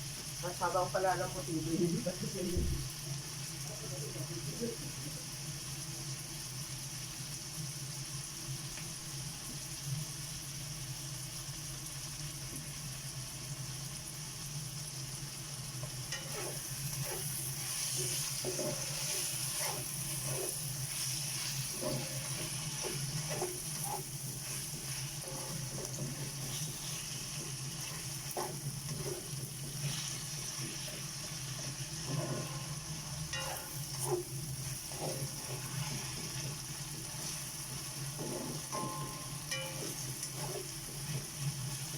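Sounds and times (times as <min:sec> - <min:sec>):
beef sizzling in a pan: 0:00.0 - 0:41.9
spoon scraping against a pan: 0:15.8 - 0:41.9.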